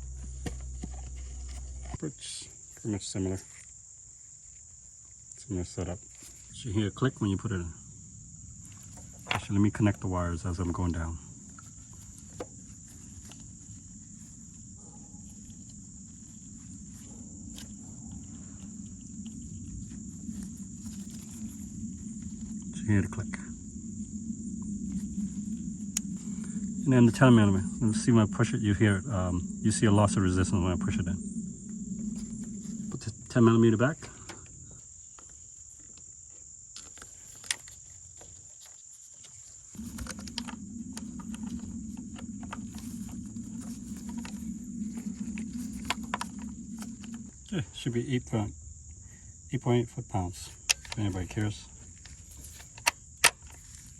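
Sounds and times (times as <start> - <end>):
low hum: 0.0 - 2.0, 7.2 - 35.1, 39.6 - 49.4
insects chirring: 0.0 - 53.9
low background rumble: 5.6 - 35.6, 39.5 - 53.9
high-pitched whine: 6.6 - 34.8, 39.6 - 49.2.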